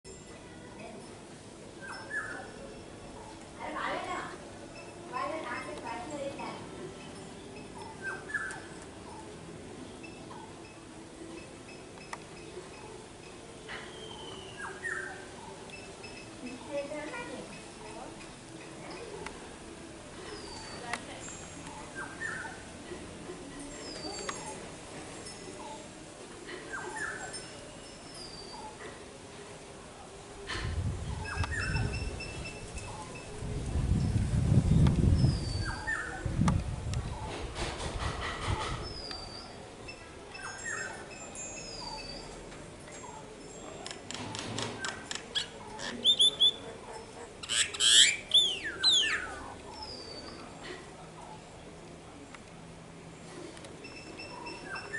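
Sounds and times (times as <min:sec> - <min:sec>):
bird dry clicks: 0:43.8 - 0:45.5
mynas calling: 0:44.8 - 0:50.6
bird harsh squawk: 0:47.4 - 0:49.4.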